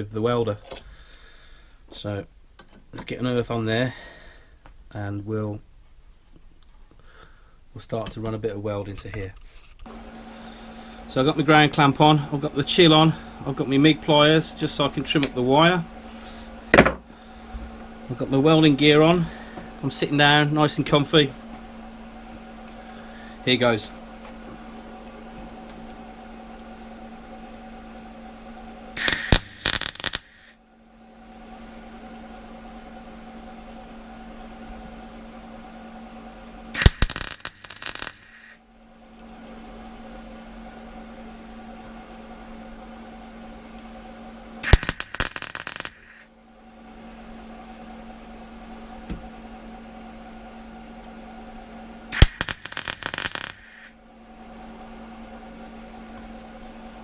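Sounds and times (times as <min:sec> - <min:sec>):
steady hum: 0:00.0 - 0:57.0
welder crackling bursts: 0:29.0 - 0:30.6, 0:36.7 - 0:38.6, 0:44.6 - 0:46.3, 0:52.1 - 0:54.0.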